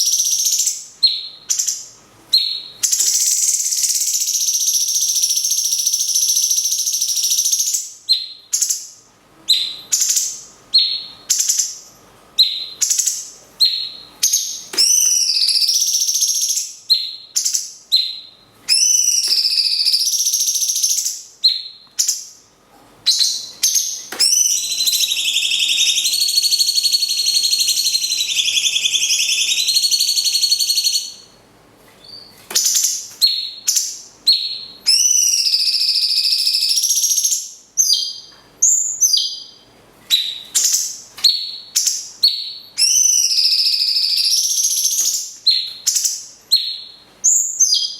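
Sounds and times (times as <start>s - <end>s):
high chattering bird trills: 12.4s - 22.3s, 23.1s - 31.3s
short sharp high bird calls: 24.2s - 31.2s.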